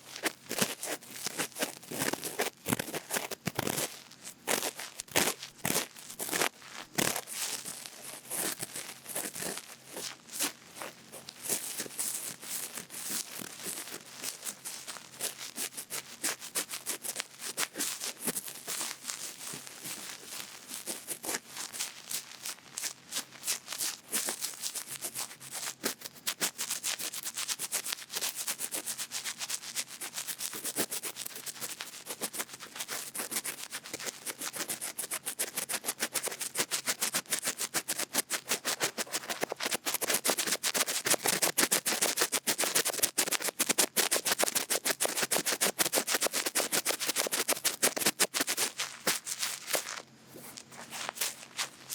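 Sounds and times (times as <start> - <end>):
cotton bud scratching microphone: 30.0 - 51.9.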